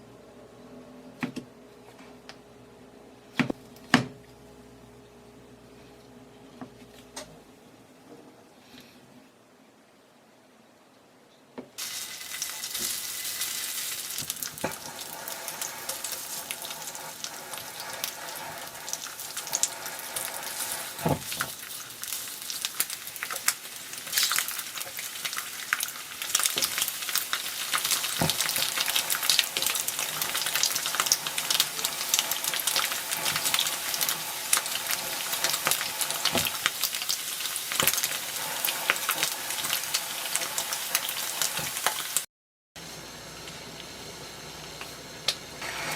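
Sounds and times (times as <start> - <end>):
food sizzling in oil: 11.8 - 42.3, 43.7 - 45.9.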